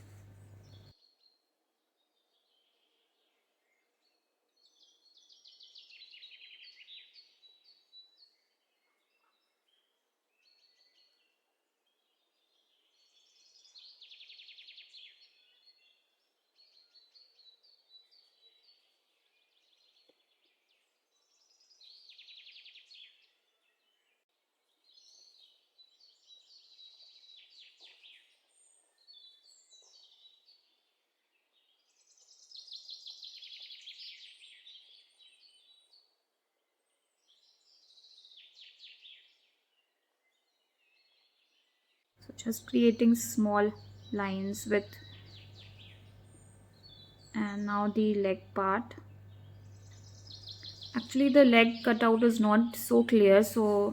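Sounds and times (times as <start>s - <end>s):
songbird trilling chirps: 0.0s - 0.9s, 31.9s - 36.0s, 40.3s - 53.9s.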